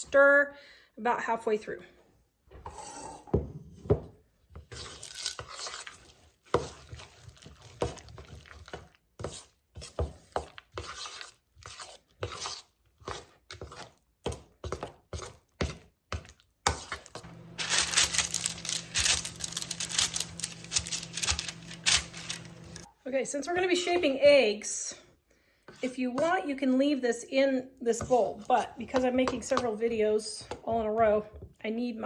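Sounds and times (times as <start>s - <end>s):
microwave oven humming: 17.2s - 22.8s.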